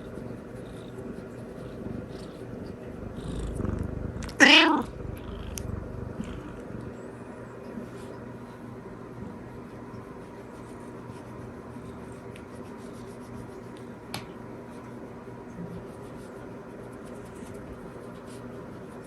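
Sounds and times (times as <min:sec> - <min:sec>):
low hum: 0:02.7 - 0:07.0.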